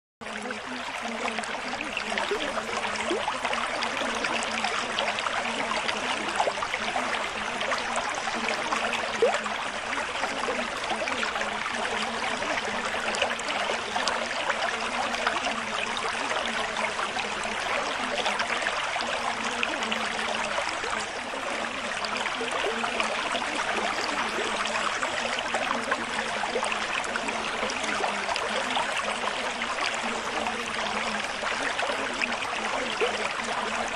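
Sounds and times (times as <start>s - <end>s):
water trickling: 0.2s - 33.9s.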